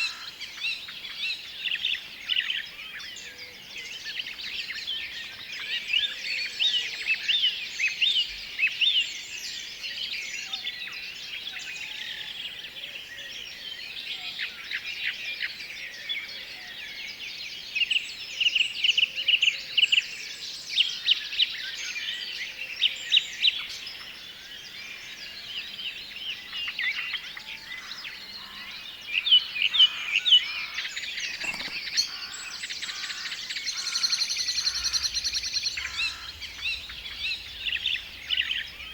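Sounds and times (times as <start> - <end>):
songbirds singing and chirping: 0.0 - 38.9
bird trill: 28.4 - 38.9
steady hiss: 34.2 - 38.9.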